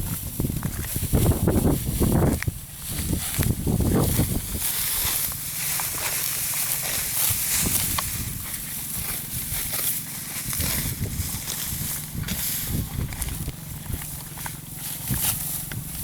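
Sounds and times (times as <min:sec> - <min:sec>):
dry wheat stalks rustling: 0:00.0 - 0:16.0.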